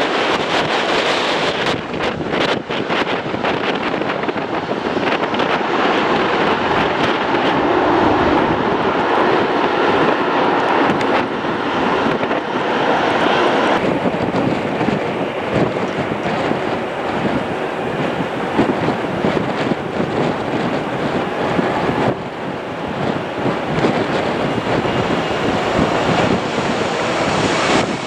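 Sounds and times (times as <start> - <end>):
jet airliner engines rushing: 0.0 - 28.0
wind buffeting microphone: 0.0 - 28.0.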